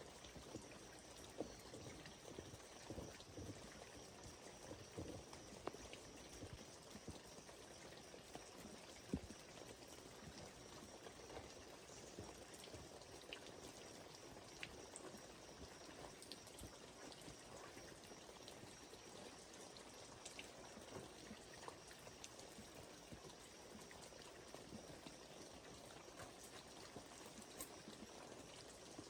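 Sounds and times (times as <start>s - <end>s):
small ticks: 0.1s - 29.0s.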